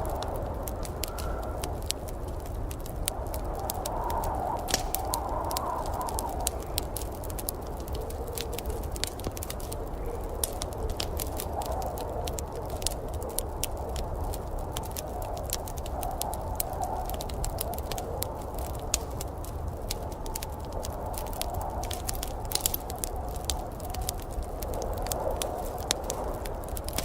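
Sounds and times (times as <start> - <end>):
low fire rumble: 0.0 - 27.0
wood fire crackling: 0.0 - 27.0
small sharp pops: 4.5 - 7.4.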